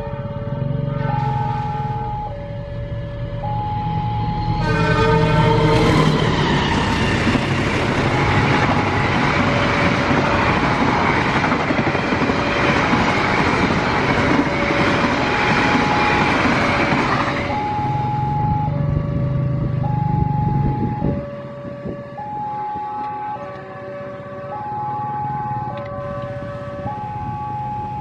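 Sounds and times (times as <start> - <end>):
train horn: 0.0 - 2.1, 4.2 - 9.0
two-tone crossing warning alarm: 0.0 - 28.0
train wheels rushing on rail: 4.5 - 17.8.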